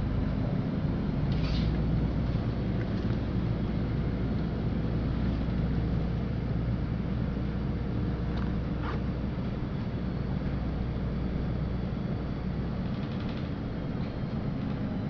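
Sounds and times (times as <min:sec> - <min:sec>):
bus engine rumbling: 0:00.0 - 0:15.0.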